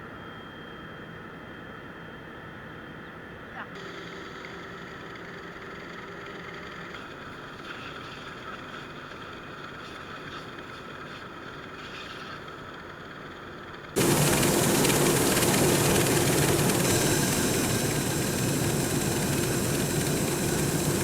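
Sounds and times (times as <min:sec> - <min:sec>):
combine harvester running: 0:13.9 - 0:21.0.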